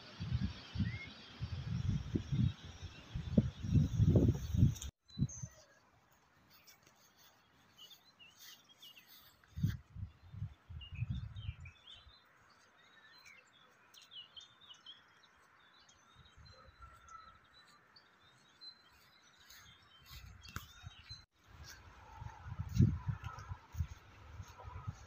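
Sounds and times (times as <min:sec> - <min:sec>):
small birds chirping and singing: 0:00.0 - 0:25.0
low rumbling microphone bumps: 0:00.2 - 0:04.9.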